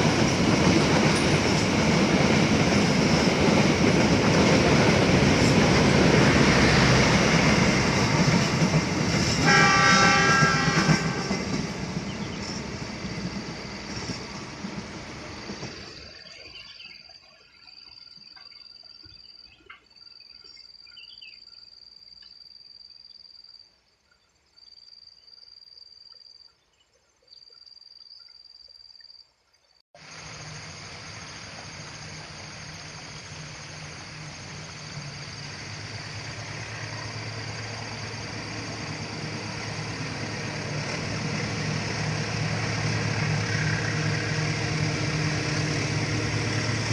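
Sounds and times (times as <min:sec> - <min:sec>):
passing train: 0:00.0 - 0:17.2, 0:30.0 - 0:46.9
insects trilling: 0:30.0 - 0:46.9.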